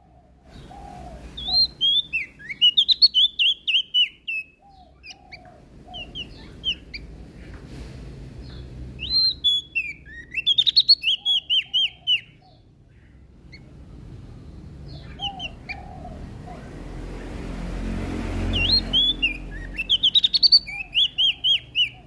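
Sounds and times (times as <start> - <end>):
bird singing high chirps: 0.6 - 7.1, 8.4 - 13.8, 14.7 - 16.0, 18.4 - 22.0.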